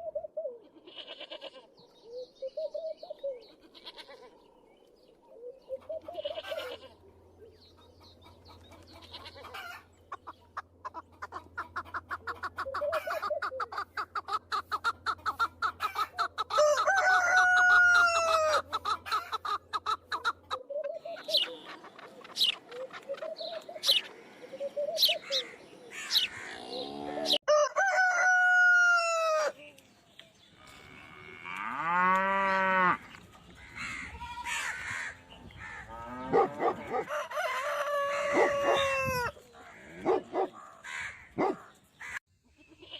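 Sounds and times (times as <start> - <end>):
chickens clucking: 5.3 - 6.9, 7.5 - 27.4, 33.1 - 42.9
roosters crowing: 15.8 - 19.6, 23.8 - 29.6, 30.8 - 41.4.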